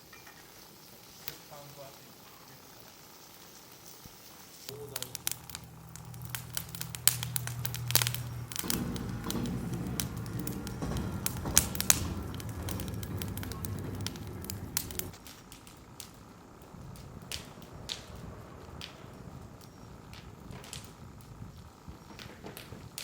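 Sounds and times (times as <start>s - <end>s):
wood fire crackling and popping: 0.0s - 23.0s
low steady hum: 4.7s - 22.3s.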